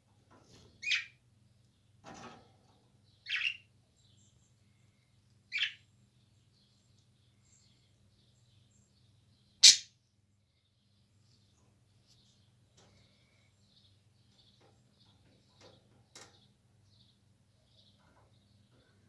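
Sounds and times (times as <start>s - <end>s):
parrot high-pitched calls: 9.6s - 9.9s.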